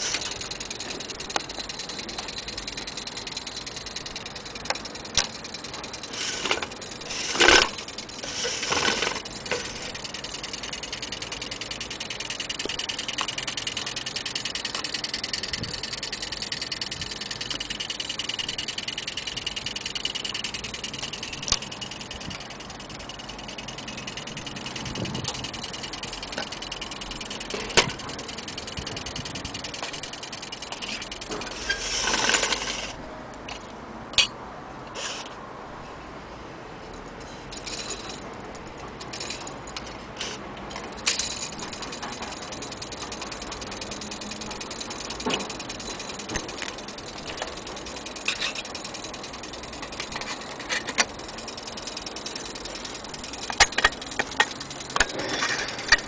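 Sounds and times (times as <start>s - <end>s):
sharp clicks: 0.0s - 31.6s
light metallic rattles: 0.0s - 34.4s, 36.9s - 56.0s.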